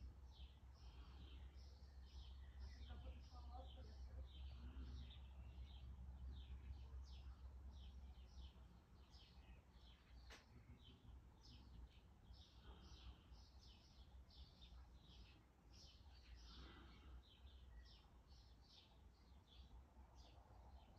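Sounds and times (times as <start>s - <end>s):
low steady hum: 0.0s - 20.9s
small birds chirping: 0.0s - 20.9s.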